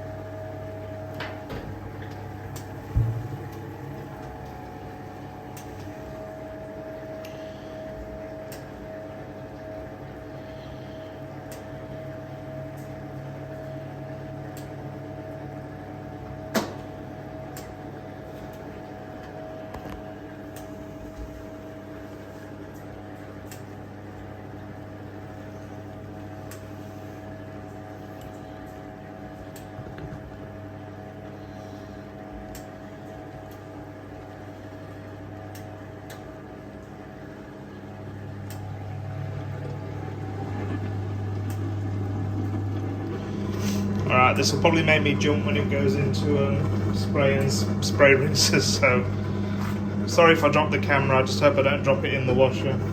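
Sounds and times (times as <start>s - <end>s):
washing machine motor humming: 0.0s - 52.9s.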